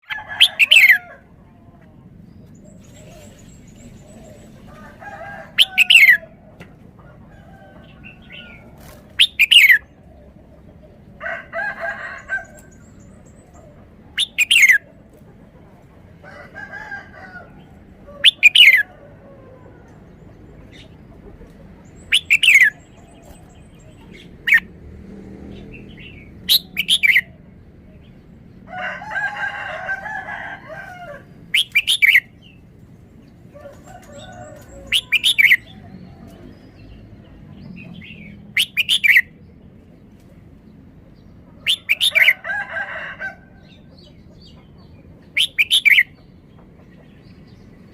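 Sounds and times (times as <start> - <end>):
bird chattering calls: 0.4 - 1.0, 5.6 - 6.2, 9.2 - 9.9, 12.6 - 14.9, 18.1 - 18.9, 20.7 - 24.7, 25.8 - 27.3, 31.5 - 32.6, 34.9 - 35.8, 37.8 - 39.4, 41.6 - 42.4, 45.3 - 46.2
bird singing sweet phrases: 2.1 - 6.2, 7.4 - 11.1, 12.2 - 14.9, 17.5 - 19.0, 19.6 - 24.7, 25.4 - 28.6, 31.3 - 42.4, 43.6 - 47.9.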